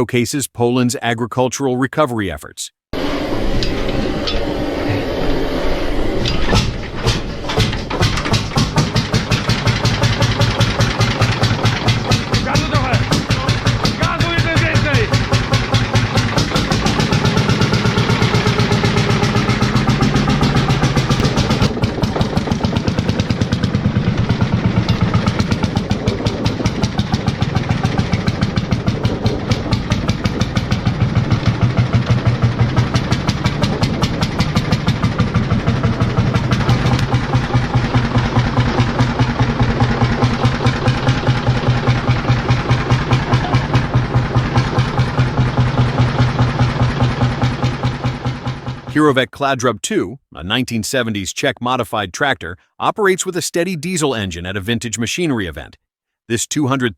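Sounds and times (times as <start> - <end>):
tractor engine knocking: 6.5 - 49.0.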